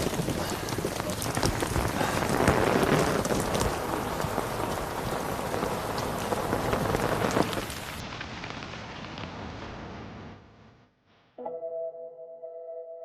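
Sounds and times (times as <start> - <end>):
raindrops striking close by: 0.0 - 10.4
heavy rain falling: 0.0 - 10.6.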